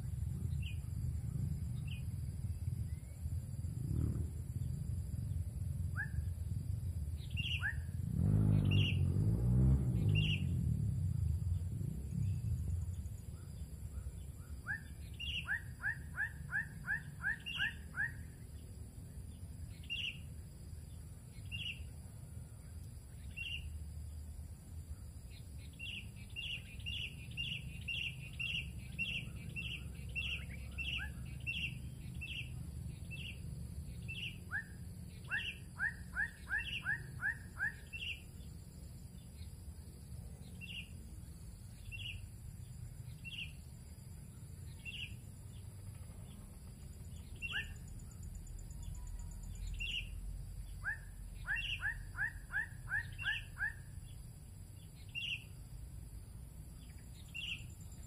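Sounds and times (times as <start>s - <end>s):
steady low rumble: 0.0s - 9.1s, 9.8s - 35.3s
small birds chirping: 0.0s - 58.0s
rising whistled bird notes: 7.2s - 10.7s, 13.3s - 18.4s, 25.6s - 38.3s, 47.1s - 54.1s.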